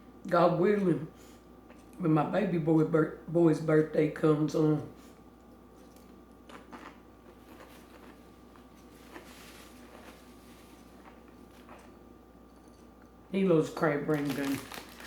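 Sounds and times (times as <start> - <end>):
faint eating sounds: 0.8 - 2.6, 4.5 - 13.2.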